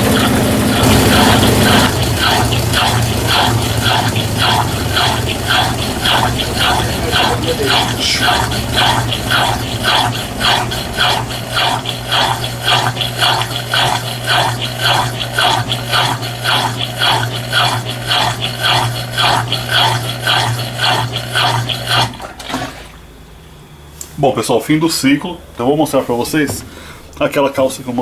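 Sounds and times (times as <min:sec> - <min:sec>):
rhythmic rubbing swish: 0:00.0 - 0:22.2
washing machine motor hum: 0:00.0 - 0:28.0.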